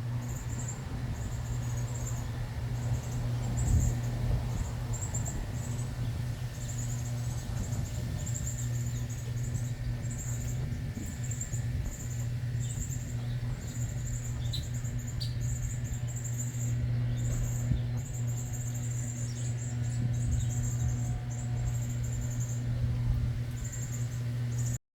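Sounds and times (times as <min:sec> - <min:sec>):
steady low hum: 0:00.0 - 0:24.8
high-pitched chirping trills: 0:00.2 - 0:24.8.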